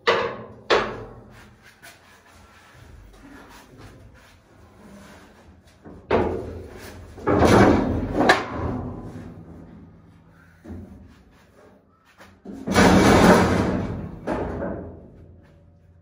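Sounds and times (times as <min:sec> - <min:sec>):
clattering bang: 0:07.2 - 0:09.3, 0:12.6 - 0:15.2.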